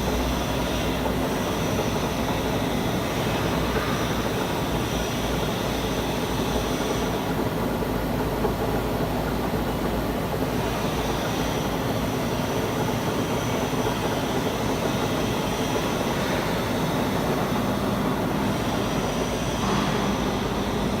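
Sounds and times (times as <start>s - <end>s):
machine tool running: 10.6s - 21.0s.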